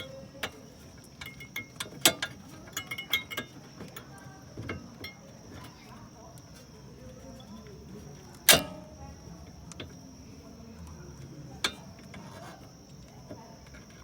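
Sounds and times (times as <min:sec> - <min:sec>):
light metal clicks: 0:00.0 - 0:14.0
metallic clank: 0:08.4 - 0:09.0.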